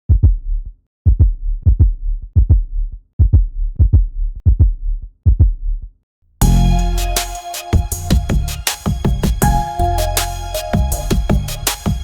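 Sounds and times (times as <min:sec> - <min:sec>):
heartbeat thumps: 0:00.1 - 0:05.8, 0:07.8 - 0:09.9, 0:10.8 - 0:12.0.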